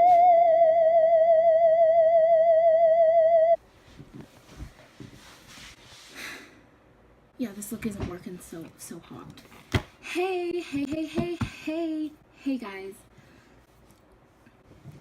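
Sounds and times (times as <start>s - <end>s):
electronic tone with vibrato: 0.0s - 3.6s
rustling and handling noises: 3.6s - 6.1s, 13.2s - 15.0s.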